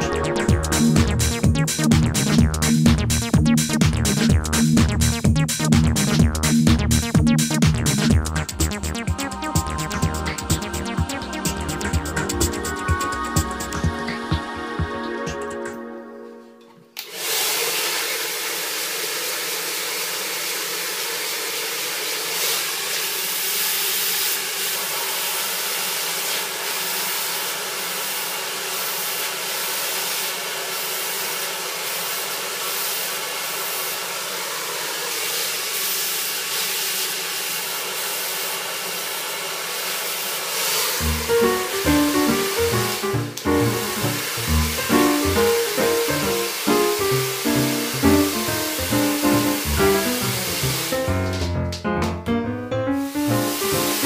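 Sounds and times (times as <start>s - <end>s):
hair dryer blowing: 17.0s - 51.1s, 53.1s - 54.0s.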